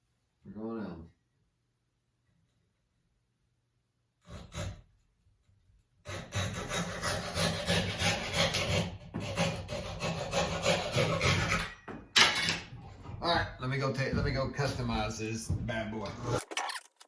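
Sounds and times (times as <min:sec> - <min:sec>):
hand tool scraping wood: 0:06.1 - 0:11.9.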